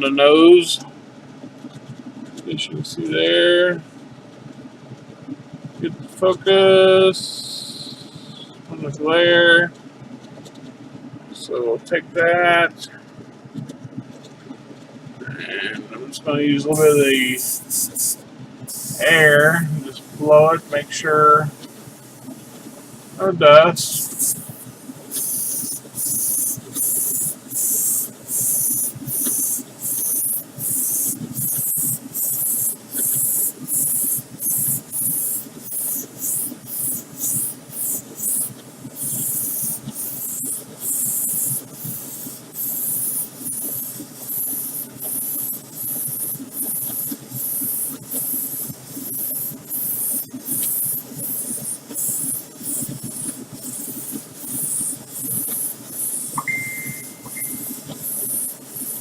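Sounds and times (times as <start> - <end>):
airbrush hissing in bursts: 16.7 - 59.0.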